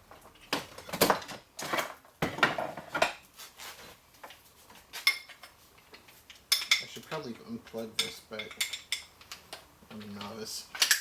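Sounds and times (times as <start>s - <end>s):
metal parts clinking: 10.8s - 11.0s.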